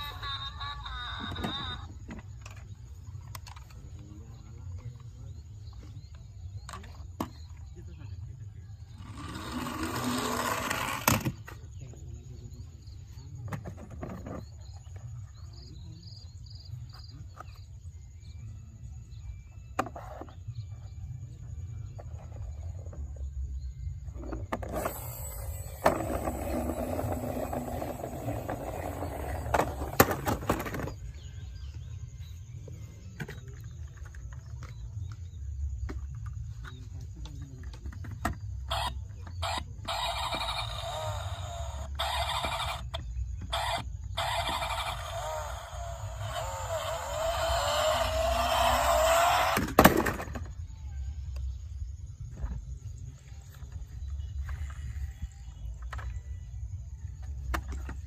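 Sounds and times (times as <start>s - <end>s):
toy cars rolling and rattling: 9.0s - 11.5s, 24.4s - 31.1s, 37.8s - 50.6s.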